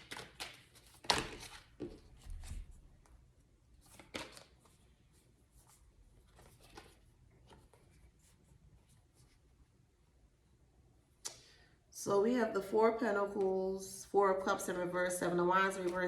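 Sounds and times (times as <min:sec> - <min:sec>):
cards shuffled and laid down: 0:03.8 - 0:04.7.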